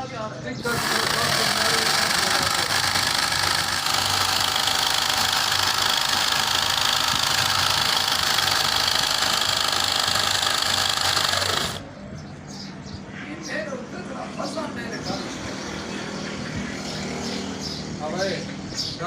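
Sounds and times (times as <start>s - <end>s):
motor running: 0.6s - 11.8s.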